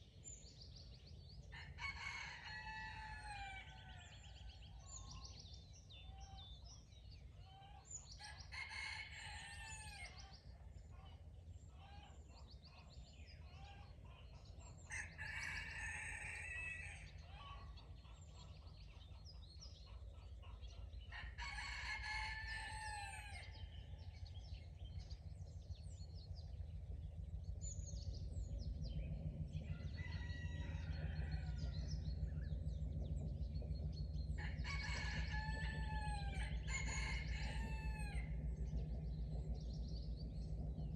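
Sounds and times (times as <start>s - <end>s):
low rumble: 0.0s - 40.9s
songbirds chirping: 0.0s - 40.9s
rooster crowing: 1.6s - 4.1s, 8.5s - 10.2s, 21.1s - 23.6s, 29.7s - 31.8s, 34.4s - 38.4s.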